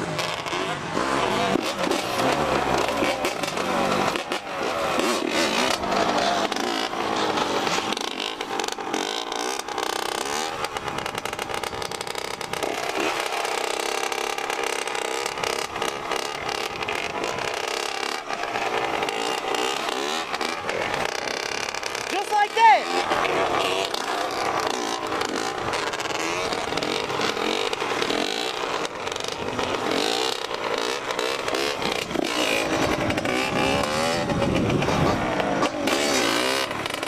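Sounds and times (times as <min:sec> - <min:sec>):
dirt bike engine revving: 0:00.0 - 0:37.0
wind noise on microphone: 0:32.8 - 0:35.5.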